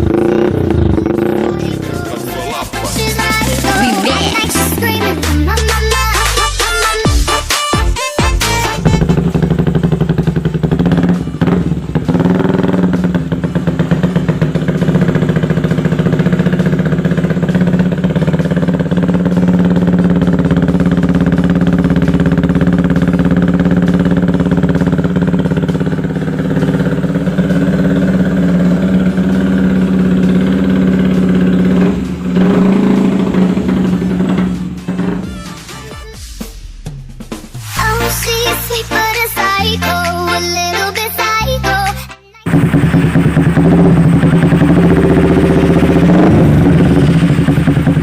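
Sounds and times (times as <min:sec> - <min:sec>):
motorcycle engine idling: 0:00.0 - 0:07.3, 0:08.4 - 0:36.6, 0:42.5 - 0:48.0.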